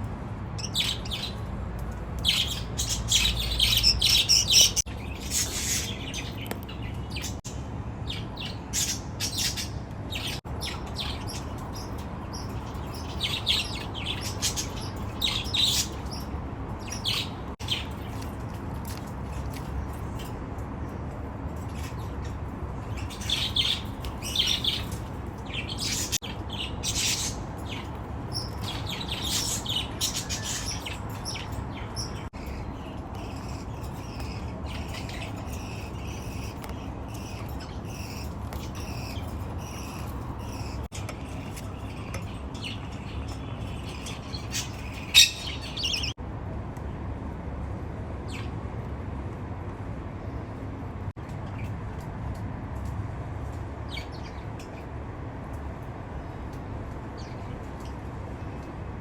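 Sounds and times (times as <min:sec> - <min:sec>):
baby budgerigars chirping: 0:00.6 - 0:01.5, 0:02.2 - 0:18.2, 0:22.8 - 0:46.2.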